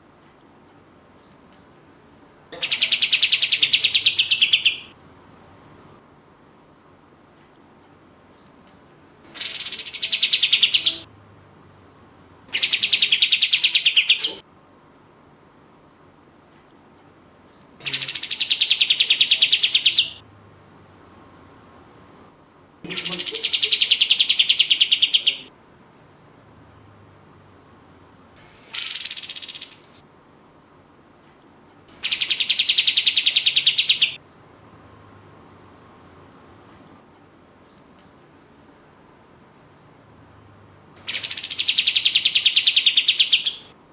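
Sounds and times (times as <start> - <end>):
bird singing rapid trills: 2.6 - 4.9, 9.4 - 11.0, 12.6 - 14.4, 17.8 - 20.2, 22.9 - 25.5, 28.8 - 30.0, 32.0 - 34.2, 41.1 - 43.7.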